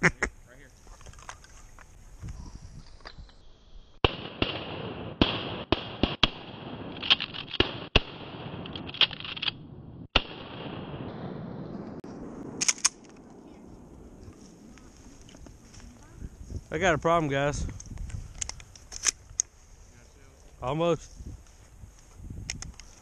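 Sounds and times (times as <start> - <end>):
shotgun blasts: 4.0 - 13.3.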